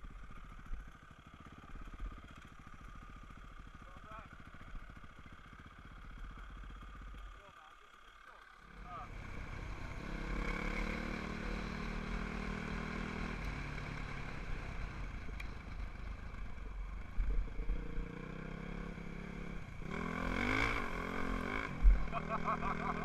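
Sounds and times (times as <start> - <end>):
dirt bike engine revving: 8.6 - 15.1, 17.2 - 23.0.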